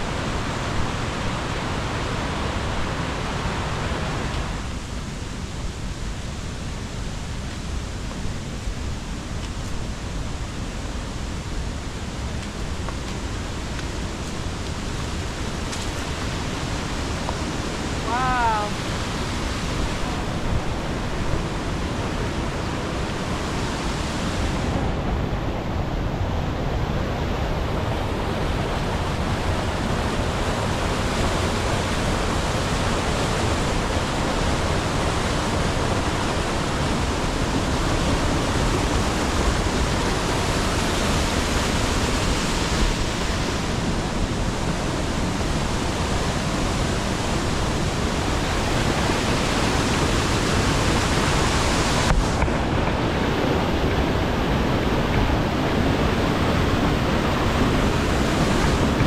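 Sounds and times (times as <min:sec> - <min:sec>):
roar of falling water: 0:11.5 - 0:24.8.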